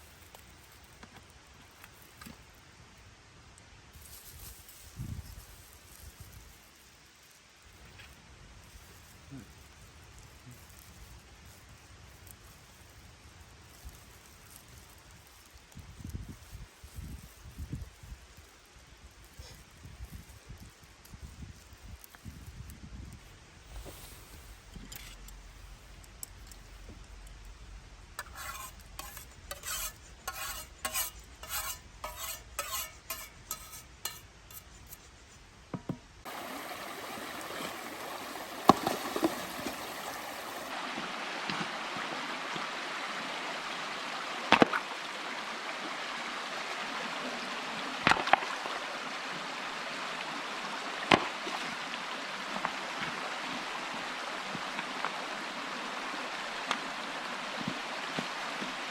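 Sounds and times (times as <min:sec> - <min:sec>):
sizzling hiss: 0:00.0 - 0:58.8
utensil scraping in a pan: 0:08.0 - 0:20.8, 0:23.7 - 0:40.8.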